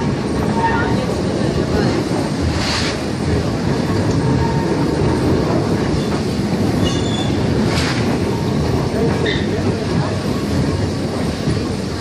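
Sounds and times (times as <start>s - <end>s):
train wheels rumbling on track: 0.0s - 12.0s
high wheel squeal: 6.8s - 7.4s.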